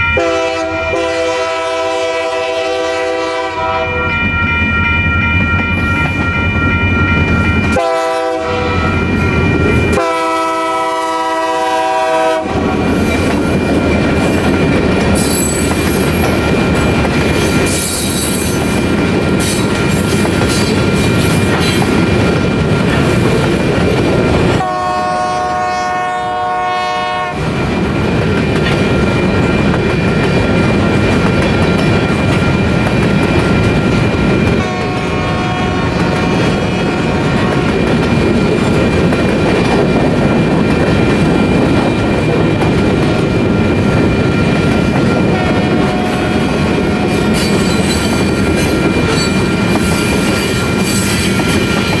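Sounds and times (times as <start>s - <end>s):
locomotive horn blasts: 0.0s - 4.0s, 7.7s - 9.0s, 9.9s - 12.9s, 24.6s - 27.4s, 34.6s - 37.8s, 45.3s - 47.2s
crossing warning bell ringing: 0.0s - 52.0s
train wheels clicking over rail joints: 12.3s - 24.7s, 27.4s - 52.0s.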